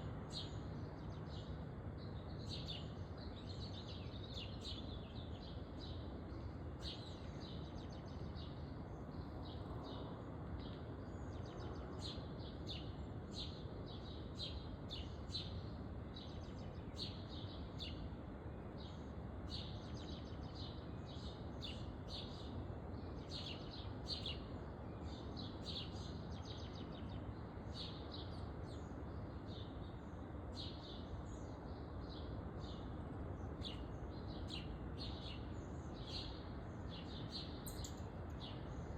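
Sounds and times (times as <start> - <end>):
low background noise: 0.0 - 38.9
small birds chirping: 18.7 - 38.9.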